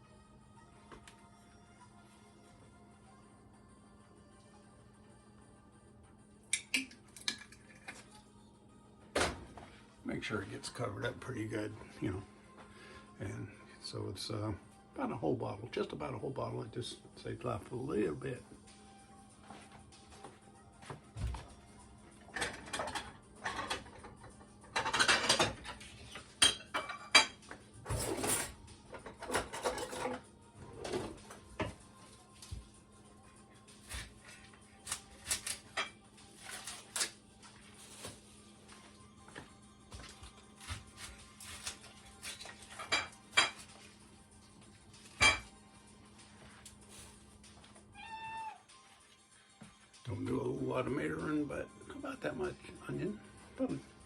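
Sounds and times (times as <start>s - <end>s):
dishware clinking: 24.7s - 25.8s, 26.4s - 30.2s, 42.7s - 43.7s, 45.2s - 45.5s.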